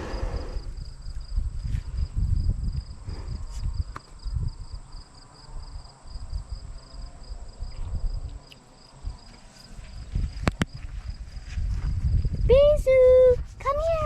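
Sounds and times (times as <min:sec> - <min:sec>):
low rumbling noise: 0:00.0 - 0:04.7
insect chirping: 0:00.0 - 0:12.5.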